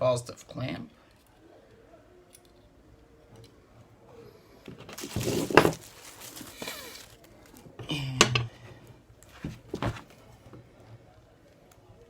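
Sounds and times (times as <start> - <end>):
metal and cable clattering: 4.9 - 7.3.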